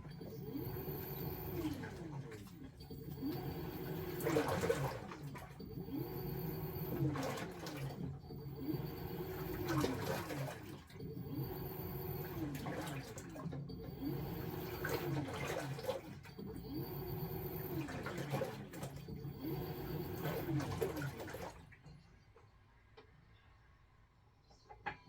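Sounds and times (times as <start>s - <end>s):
washing machine motor whining: 0.0s - 21.6s
water churning and sloshing: 3.2s - 8.2s, 12.3s - 16.2s, 17.6s - 21.7s.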